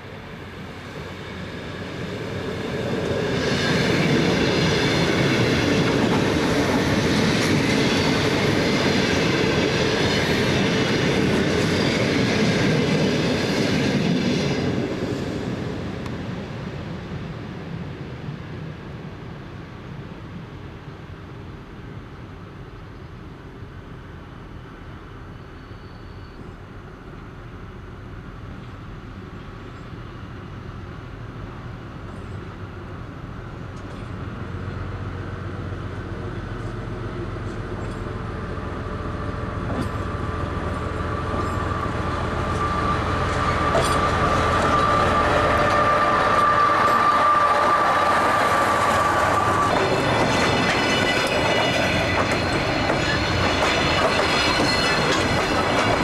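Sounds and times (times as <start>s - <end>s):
train running past: 0.0s - 56.0s
wheels clicking over rail joints: 39.6s - 56.0s
high-pitched squeal: 41.0s - 56.0s.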